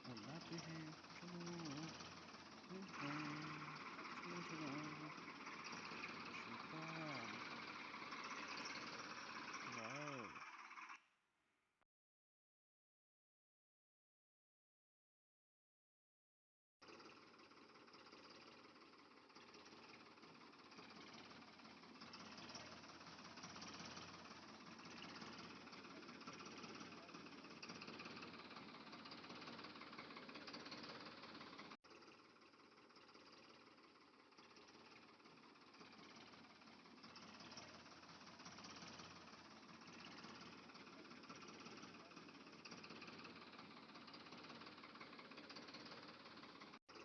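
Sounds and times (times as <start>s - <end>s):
toy motor buzzing: 0.0s - 11.0s.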